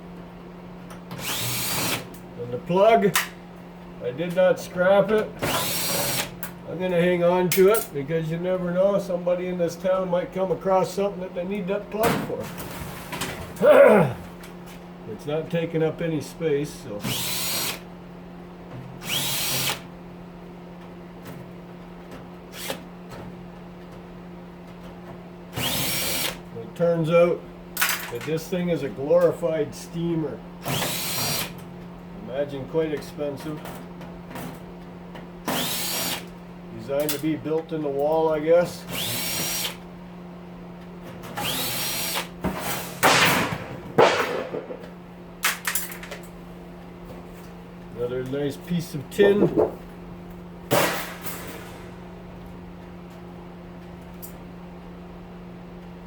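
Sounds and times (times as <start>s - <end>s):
stove fan humming: 0.0s - 56.0s
power drill whining: 1.2s - 2.1s, 5.5s - 6.3s, 17.0s - 17.8s, 19.0s - 19.8s, 25.6s - 26.4s, 30.6s - 31.5s, 35.5s - 36.3s, 38.9s - 39.8s, 41.4s - 42.4s.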